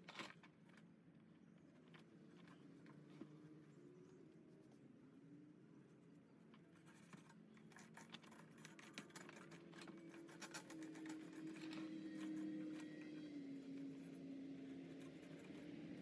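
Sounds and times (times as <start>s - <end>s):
hands scratching and clicking on metal parts: 6.5s - 16.0s.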